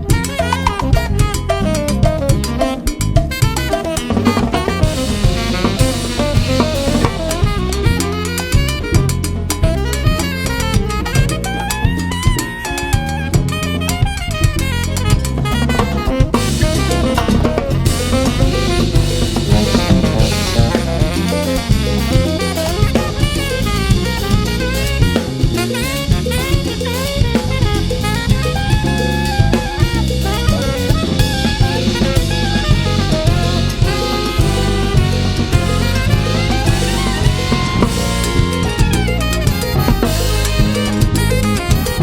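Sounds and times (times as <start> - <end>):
drum kit strokes: 0.0 - 42.0
jazz combo playing: 0.0 - 42.0
cymbals washing: 4.7 - 8.6, 16.3 - 42.0.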